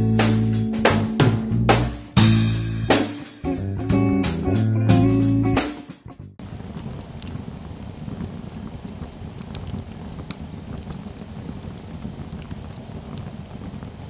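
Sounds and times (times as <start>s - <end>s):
electric fireplace whirring: 6.4s - 14.0s
faint ticks: 6.7s - 14.0s.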